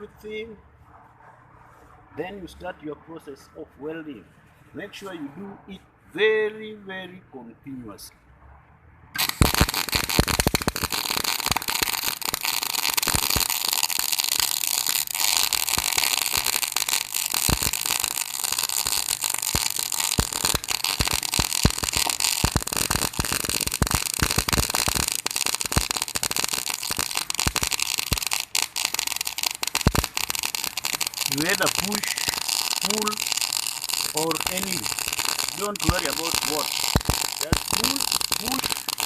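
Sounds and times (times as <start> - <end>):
welding arc crackling and sputtering: 9.2 - 39.0.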